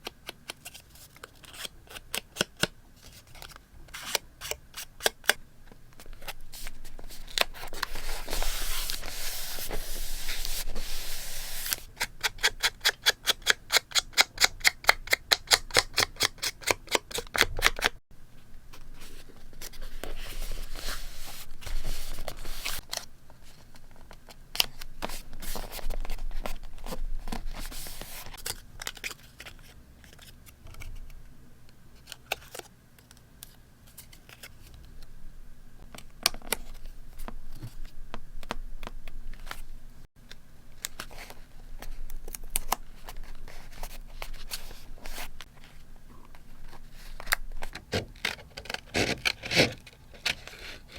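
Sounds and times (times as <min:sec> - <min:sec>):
paper rustling: 0:06.0 - 0:11.9, 0:18.7 - 0:31.0.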